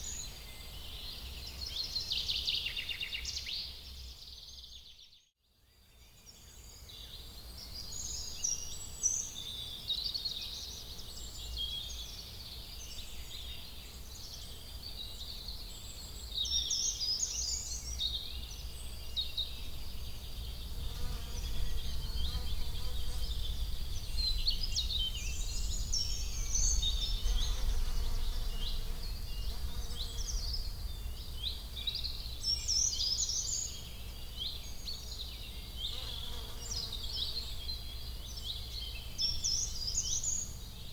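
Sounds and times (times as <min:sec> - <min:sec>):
small birds chirping: 0:07.7 - 0:40.9
low rumble: 0:19.4 - 0:33.2.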